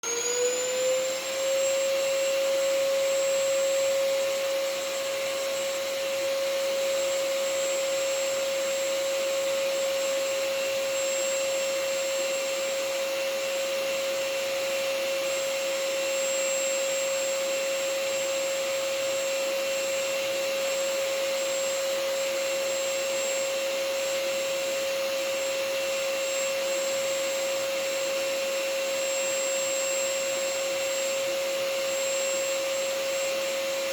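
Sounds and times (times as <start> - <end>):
vacuum cleaner motor whine: 0.0 - 33.9.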